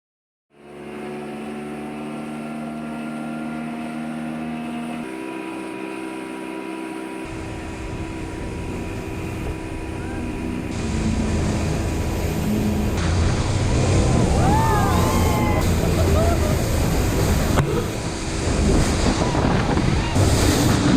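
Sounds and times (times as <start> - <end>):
speedboat engine droning: 0.5 - 20.9
rushing wind and water: 7.2 - 20.9.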